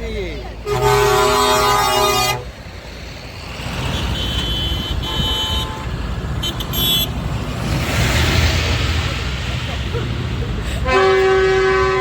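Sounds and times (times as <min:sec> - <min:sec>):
low engine rumble: 0:00.0 - 0:12.0
vehicle horns tooting: 0:00.6 - 0:02.5, 0:03.8 - 0:07.2, 0:10.8 - 0:12.0.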